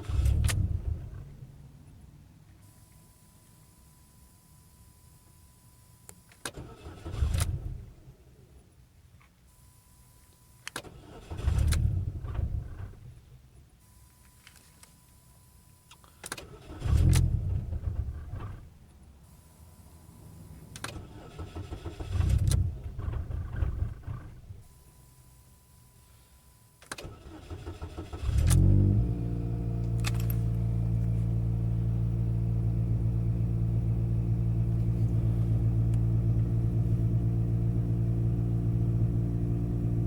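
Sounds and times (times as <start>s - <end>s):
car engine cranking and firing: 0.0s - 1.6s, 6.4s - 8.1s, 10.7s - 13.4s, 16.2s - 18.8s, 20.7s - 24.7s, 26.8s - 40.0s.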